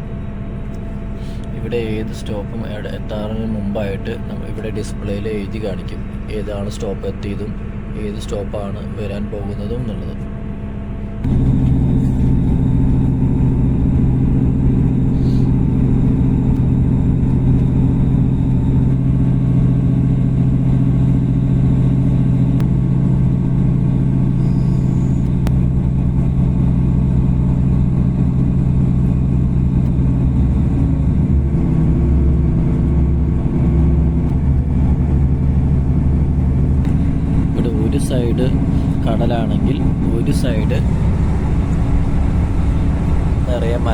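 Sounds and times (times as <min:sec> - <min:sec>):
train engine hum: 0:00.0 - 0:43.9
train running rumble: 0:00.0 - 0:43.9.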